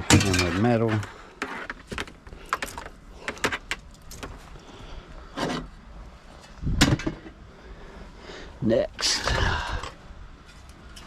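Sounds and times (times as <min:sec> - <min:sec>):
scrap metal clanking: 0:00.0 - 0:04.3.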